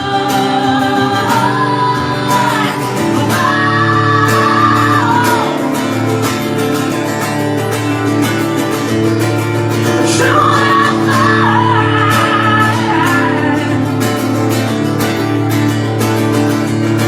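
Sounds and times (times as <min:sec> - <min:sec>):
strummed acoustic guitar: 0:00.0 - 0:17.0.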